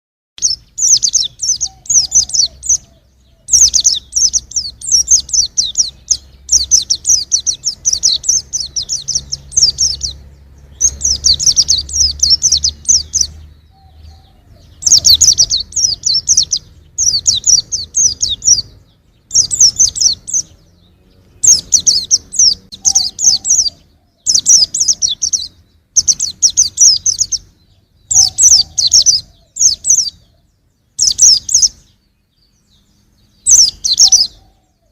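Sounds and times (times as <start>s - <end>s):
bird twittering: 0.4s - 34.9s.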